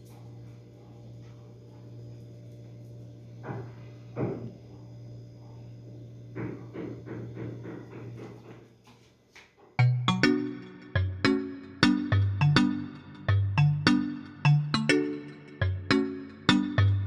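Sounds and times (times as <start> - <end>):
steady low hum: 0.0 - 9.3
dull knocks: 6.4 - 8.6.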